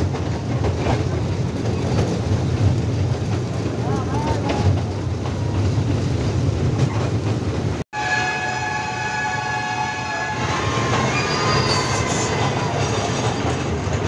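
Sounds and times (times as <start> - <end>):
train rumbling: 0.0 - 14.0
train horn: 7.9 - 12.8.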